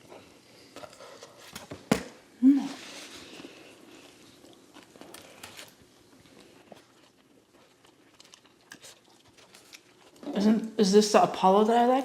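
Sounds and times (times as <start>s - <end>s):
soft eating crunches: 2.7s - 10.6s.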